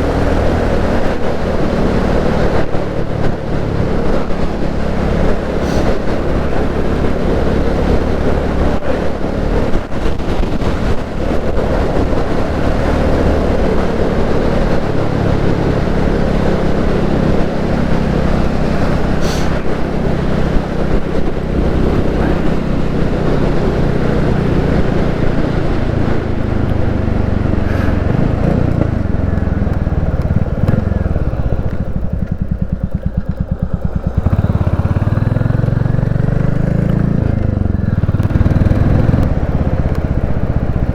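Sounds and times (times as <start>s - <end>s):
motorcycle engine running: 0.0s - 40.9s
wind rush: 0.0s - 40.9s.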